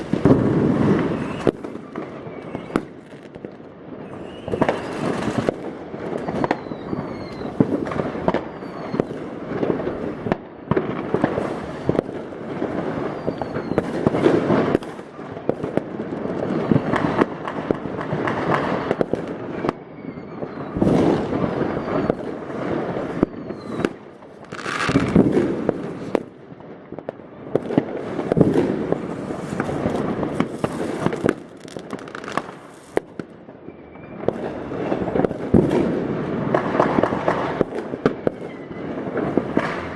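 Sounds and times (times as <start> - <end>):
fireworks bangs: 0.0 - 39.9
fireworks crackling: 0.0 - 39.9
falling whistles: 1.0 - 2.9, 4.0 - 5.4, 6.2 - 7.6, 8.4 - 9.1, 13.0 - 13.9, 19.6 - 22.3, 23.1 - 24.0, 33.6 - 34.3, 38.4 - 39.0.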